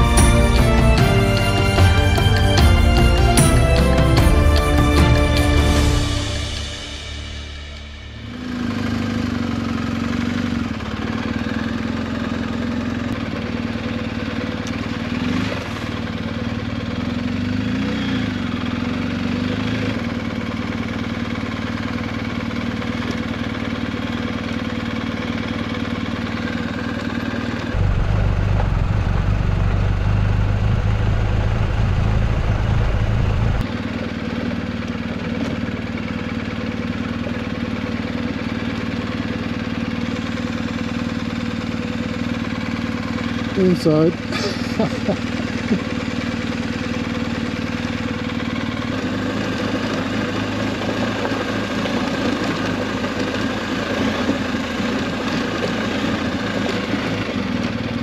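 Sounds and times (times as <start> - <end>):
low rumble: 0.0 - 9.0, 27.7 - 33.7
motorcycle engine running: 0.0 - 58.0.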